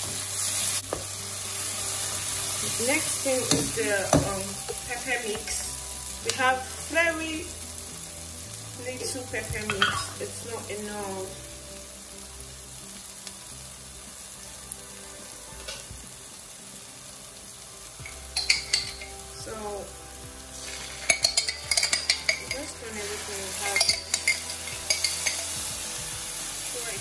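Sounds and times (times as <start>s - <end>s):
food sizzling in oil: 0.0s - 27.0s.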